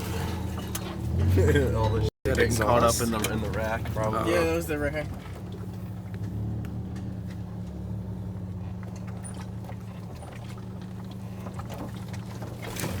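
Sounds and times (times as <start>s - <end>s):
car engine running at low revs: 0.0s - 13.0s
light knocks and rattles: 5.0s - 13.0s.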